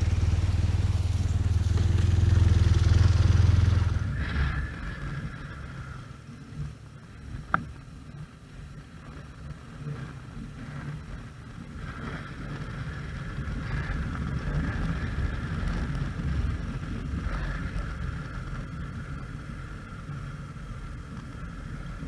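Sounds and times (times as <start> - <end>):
motorcycle engine rumbling: 0.0 - 7.5.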